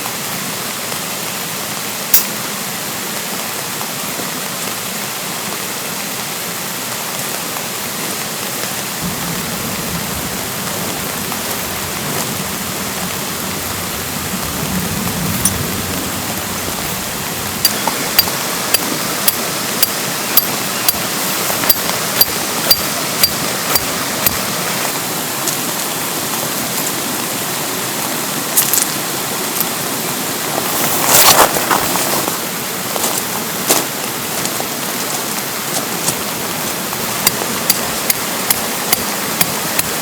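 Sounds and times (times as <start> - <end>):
steady rain falling: 0.0 - 40.0
stream rushing: 0.0 - 40.0
sharp ringing ticks: 15.4 - 16.0, 17.4 - 24.4.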